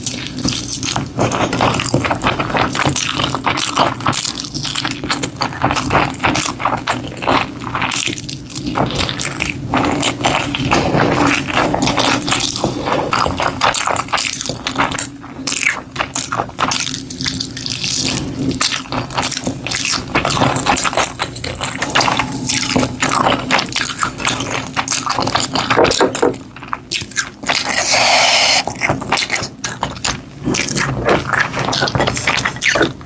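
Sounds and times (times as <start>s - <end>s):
chewing smacking and scraping: 0.0s - 33.0s
wet mouth clicks: 26.7s - 33.0s.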